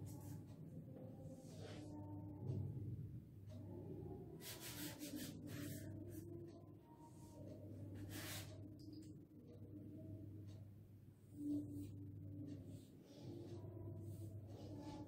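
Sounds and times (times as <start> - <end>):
chalk writing on blackboard: 4.4 - 6.3, 7.9 - 8.7, 11.4 - 15.0.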